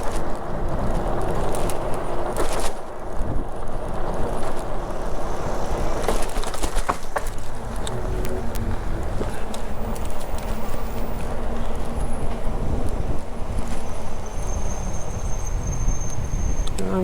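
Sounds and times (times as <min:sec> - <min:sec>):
bike clicks and rattles: 0:00.0 - 0:14.2
bicycle rolling: 0:00.0 - 0:17.0
wind rumble on microphone: 0:00.0 - 0:17.0.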